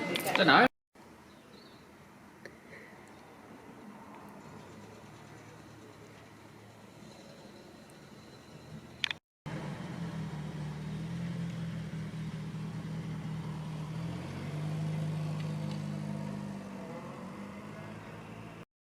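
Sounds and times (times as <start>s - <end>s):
car engine humming: 8.9s - 18.6s.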